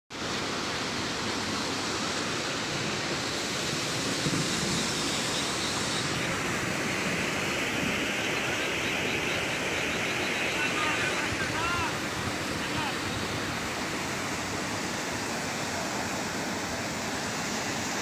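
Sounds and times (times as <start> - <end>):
floodwater rushing: 0.1 - 18.0.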